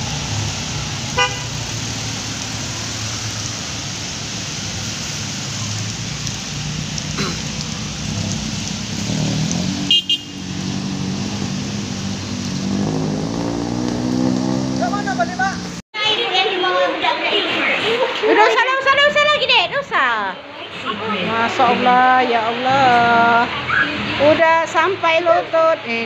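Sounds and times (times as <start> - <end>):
vehicle engines running: 0.0 - 15.8
water splashing: 0.0 - 15.8
car horn honk: 1.2 - 1.5, 9.9 - 10.4.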